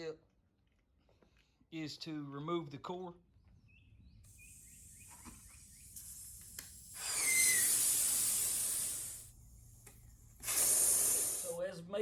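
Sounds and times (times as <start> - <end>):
air hissing from tire valve: 4.3 - 11.6
brief whistle: 7.0 - 8.4.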